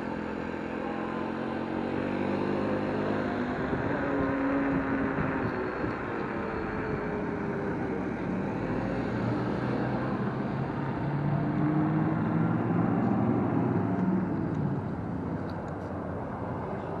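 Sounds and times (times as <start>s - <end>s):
wind and road noise rumble: 0.0s - 17.0s.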